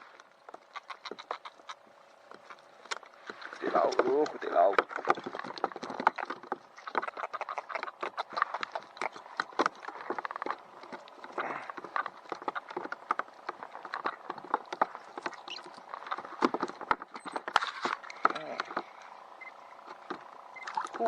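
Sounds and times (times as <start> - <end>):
knocking and tapping on kayak hull: 0.4 - 19.0.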